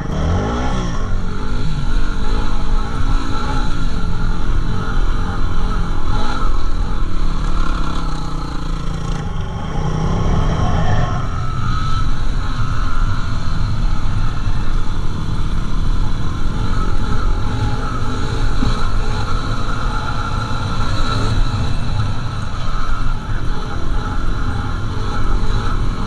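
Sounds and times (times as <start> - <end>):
motorcycle engine running: 0.0 - 26.0
heavy low rumble: 8.9 - 26.0.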